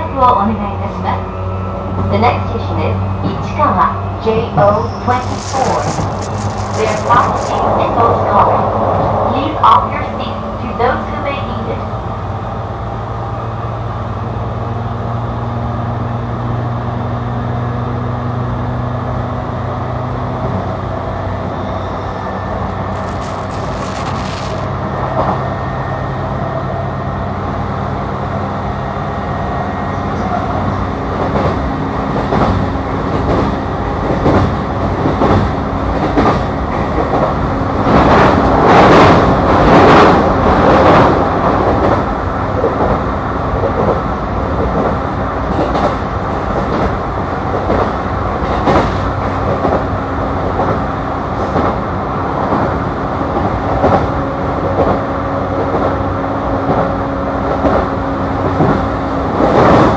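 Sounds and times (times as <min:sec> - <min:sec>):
train wheels rumbling on rails: 0:00.0 - 0:59.9
train clicks: 0:03.2 - 0:08.4, 0:22.4 - 0:26.0, 0:31.1 - 0:59.9.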